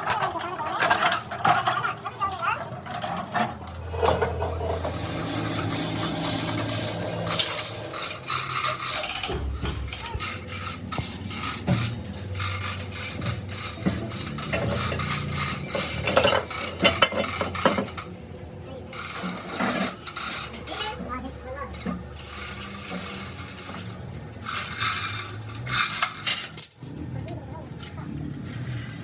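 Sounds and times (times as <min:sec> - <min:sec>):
metal tools clinking and scraping: 0:00.0 - 0:29.0
low hum: 0:03.6 - 0:16.8.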